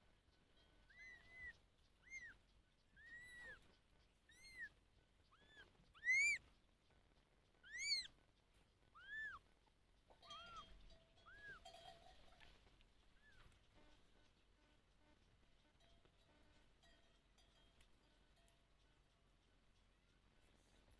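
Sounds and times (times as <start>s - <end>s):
kitten meowing: 5.3s - 6.4s, 7.6s - 8.1s, 9.0s - 9.4s.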